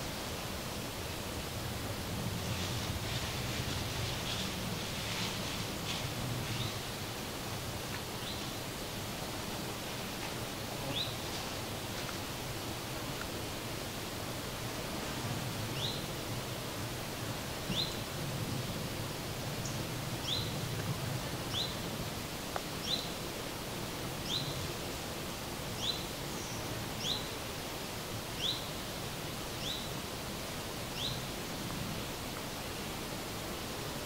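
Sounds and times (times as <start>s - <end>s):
outdoor background hiss: 0.0s - 34.0s.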